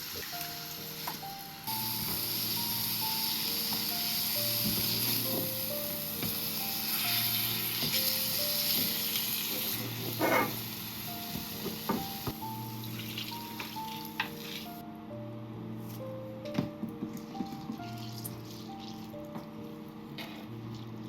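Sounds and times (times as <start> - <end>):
food sizzling in a pan: 0.0 - 14.8
gentle background music: 0.0 - 21.0.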